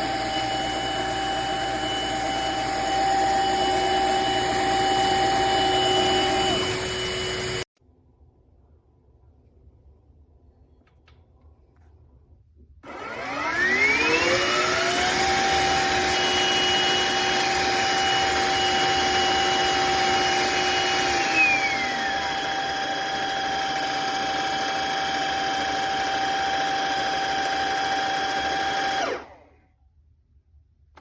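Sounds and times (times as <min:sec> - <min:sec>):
wet-dry vacuum motor whine: 0:00.0 - 0:07.7, 0:12.8 - 0:29.6.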